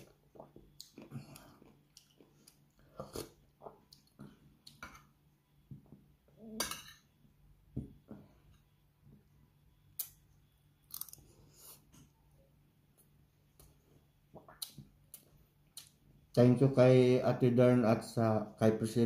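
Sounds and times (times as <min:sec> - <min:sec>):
person chewing and smacking: 0:00.0 - 0:04.8, 0:13.5 - 0:16.0.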